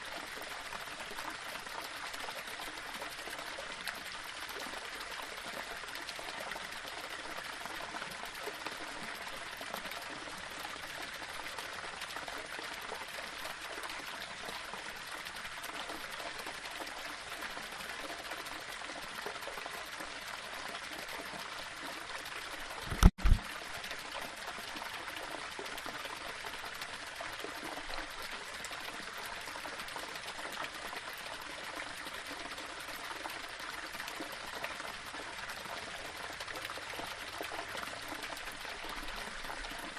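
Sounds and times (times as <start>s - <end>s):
small waterfall splashing over stones: 0.0s - 39.9s
loud low thump: 22.9s - 23.4s.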